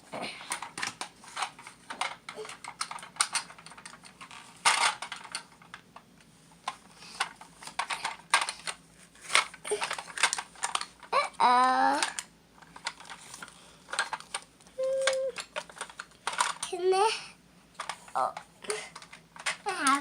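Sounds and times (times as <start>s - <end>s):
plastic toy truck handled: 6.6s - 11.0s, 15.0s - 16.7s.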